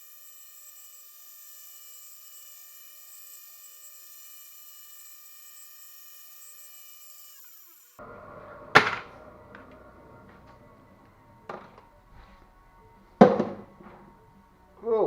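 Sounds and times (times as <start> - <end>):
sharp knock: 8.8 - 9.1.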